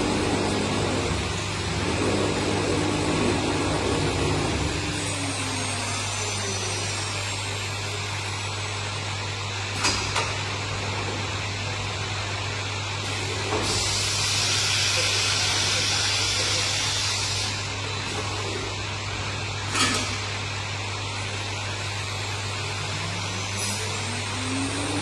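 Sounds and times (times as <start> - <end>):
mechanical hum: 0.0 - 25.0
loud hiss: 13.6 - 17.7.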